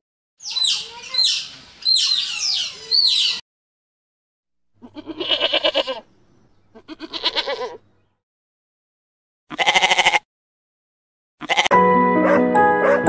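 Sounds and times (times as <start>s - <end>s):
sheep and goats bleating: 4.8s - 6.1s, 6.7s - 7.8s, 9.5s - 10.2s, 11.4s - 11.8s.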